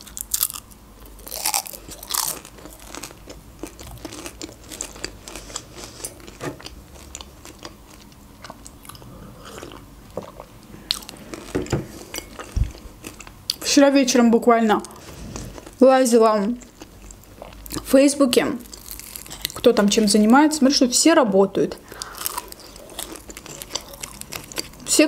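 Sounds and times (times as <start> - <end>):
chewing with small crunches: 0.0 - 13.7, 16.4 - 19.8, 21.9 - 25.0
person biting crunchy food: 1.2 - 5.7, 22.0 - 24.8.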